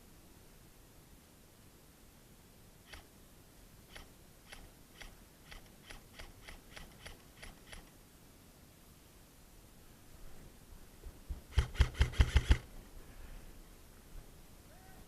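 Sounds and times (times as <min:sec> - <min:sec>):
short sharp clicks: 0:02.9 - 0:03.1.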